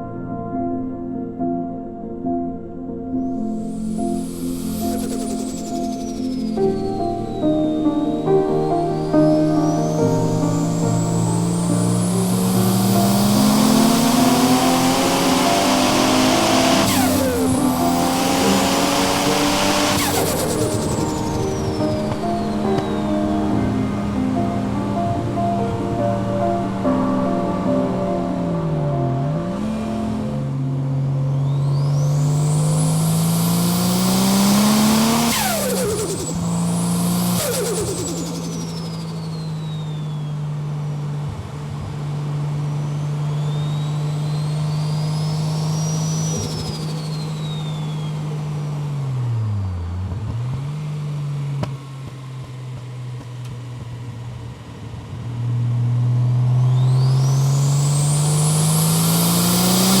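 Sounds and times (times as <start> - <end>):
high turbo whistling: 3.4 - 60.0
turbocharged car engine revving: 3.7 - 60.0.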